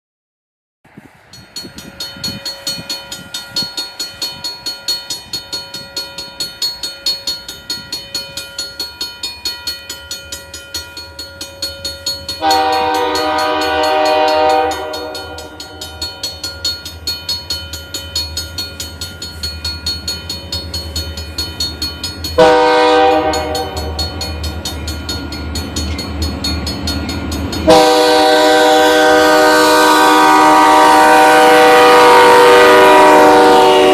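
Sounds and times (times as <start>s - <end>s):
train wheels clicking over rail joints: 1.2s - 30.8s
locomotive air horn blast: 12.4s - 16.0s, 22.4s - 24.0s, 27.6s - 33.9s.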